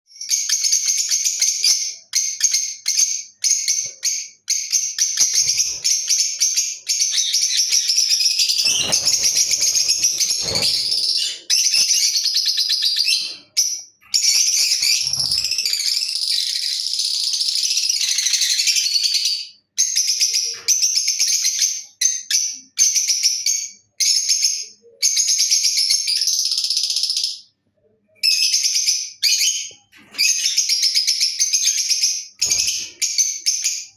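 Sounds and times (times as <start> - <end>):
lovebird chirping: 0.1 - 19.2.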